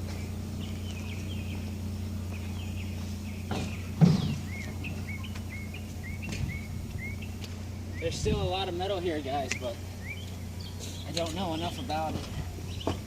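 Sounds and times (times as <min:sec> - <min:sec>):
bird chirping: 0:00.0 - 0:13.0
steady low hum: 0:00.0 - 0:13.0.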